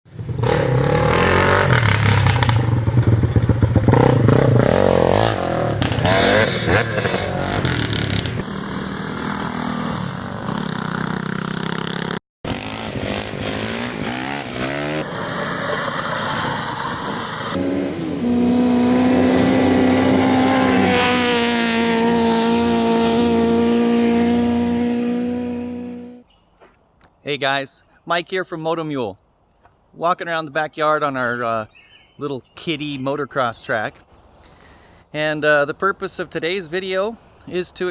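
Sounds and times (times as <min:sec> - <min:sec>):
engines revving: 0:00.1 - 0:26.2.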